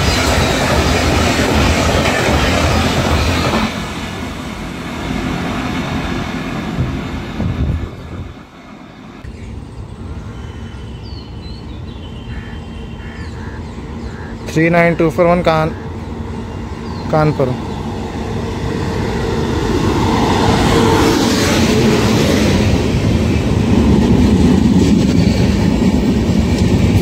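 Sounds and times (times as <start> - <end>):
train coaches rushing past: 0.0 - 9.2, 13.9 - 27.0
low train background: 0.0 - 27.0.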